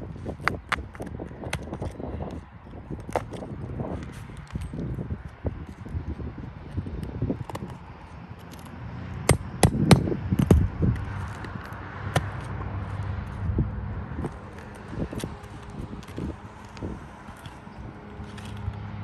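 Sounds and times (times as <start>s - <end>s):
tool scraping shingles: 8.4s - 13.3s, 14.2s - 18.9s
hand tool knocking on shingles: 9.3s - 10.7s.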